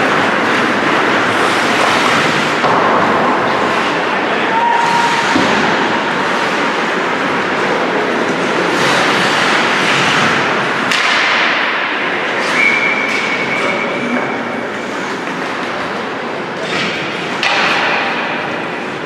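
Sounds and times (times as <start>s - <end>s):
skates scraping ice: 0.0s - 19.0s
sharp crack: 10.8s - 12.0s
referee's whistle: 12.4s - 14.0s.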